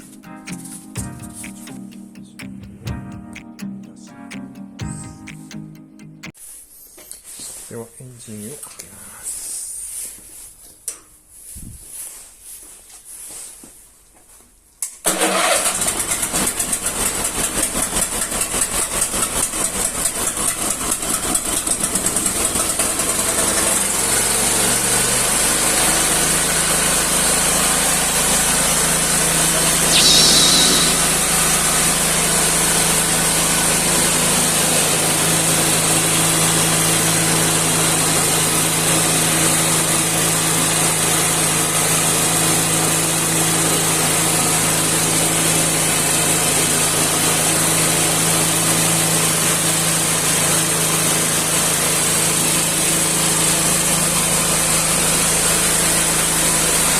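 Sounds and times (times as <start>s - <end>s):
brief high-pitched sound: 29.9s - 31.6s.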